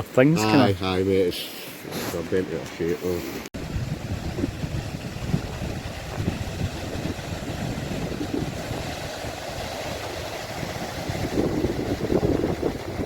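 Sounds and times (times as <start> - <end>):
wind buffeting microphone: 3.6 - 13.0.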